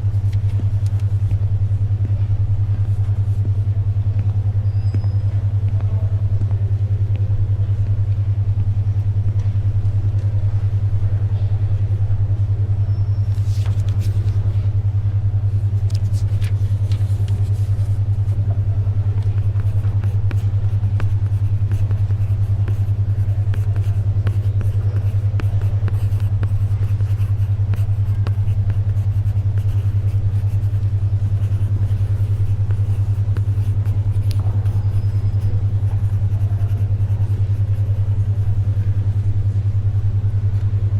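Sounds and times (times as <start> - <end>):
pulsing low humming tone: 0.0 - 40.9
pages turning: 13.3 - 14.4, 15.9 - 18.0
pencil writing: 19.2 - 38.4.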